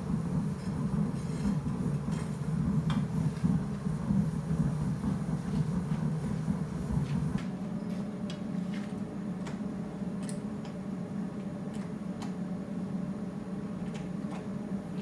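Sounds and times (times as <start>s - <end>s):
forge humming: 0.0s - 7.4s.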